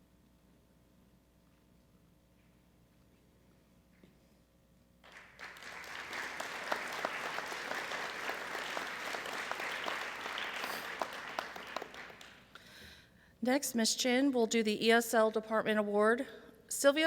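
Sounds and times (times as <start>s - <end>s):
audience applauding: 5.0s - 12.8s.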